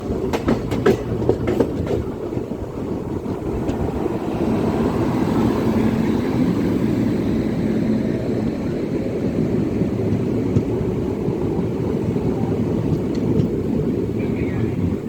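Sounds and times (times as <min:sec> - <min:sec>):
train wheels clicking over joints: 0:00.0 - 0:05.0, 0:12.6 - 0:15.0
train rumbling: 0:00.0 - 0:15.0.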